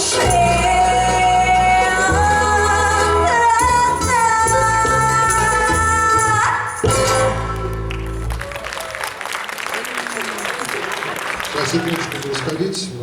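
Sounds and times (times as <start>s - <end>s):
person singing: 0.0s - 6.6s
musical accompaniment: 0.0s - 8.6s.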